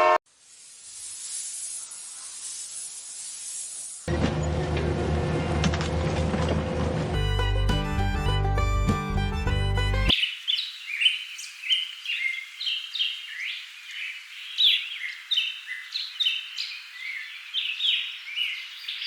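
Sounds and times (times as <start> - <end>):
small birds chirping: 10.1 - 19.0.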